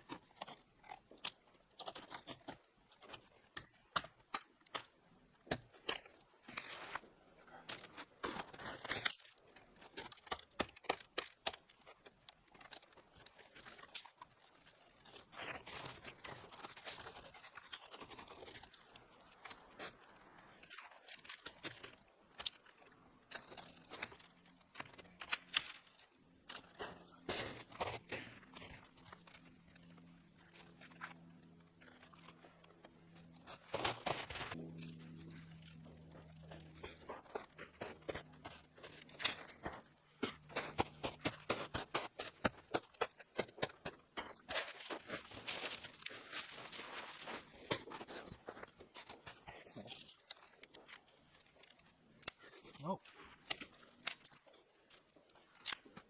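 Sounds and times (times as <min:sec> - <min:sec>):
faint low hum: 0:22.8 - 0:51.7.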